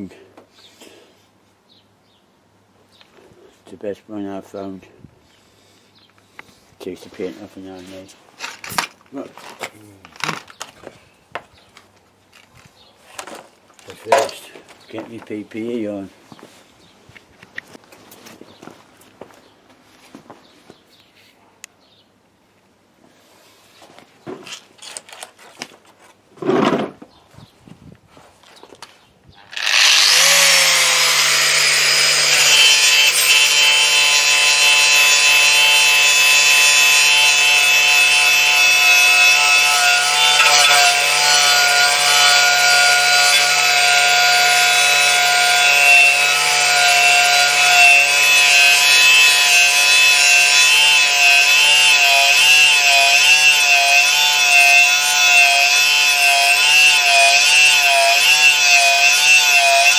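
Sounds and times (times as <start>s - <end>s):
power tool grinding rusty steel: 29.5s - 59.9s.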